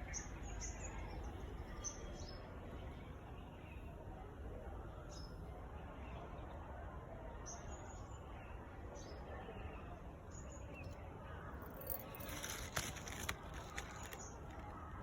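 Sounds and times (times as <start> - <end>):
rustling and sharp clicks: 11.7 - 14.9.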